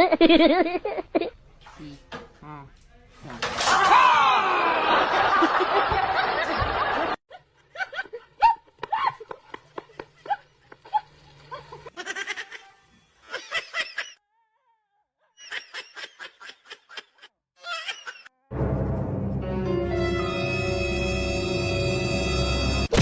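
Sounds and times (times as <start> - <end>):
laughter in rapid bursts: 0.0 - 1.4, 4.6 - 14.2, 15.4 - 18.3.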